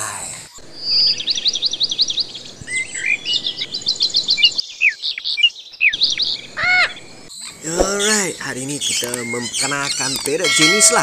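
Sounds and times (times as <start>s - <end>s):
bird chirping and twittering: 0.5s - 10.7s
bird squawk: 5.8s - 7.9s.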